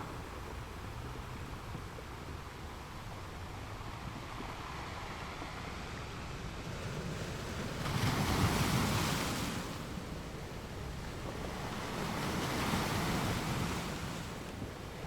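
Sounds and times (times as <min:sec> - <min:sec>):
ocean surf washing: 0:03.2 - 0:15.0.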